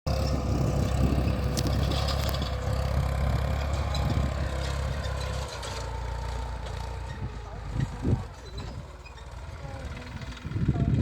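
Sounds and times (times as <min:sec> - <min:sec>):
tractor engine humming: 0:00.1 - 0:11.0.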